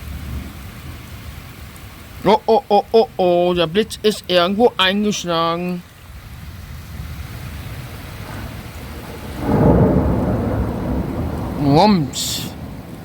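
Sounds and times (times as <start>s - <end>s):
low rumble of thunder: 0.0s - 2.2s, 6.0s - 13.0s
steady rain: 0.0s - 13.0s.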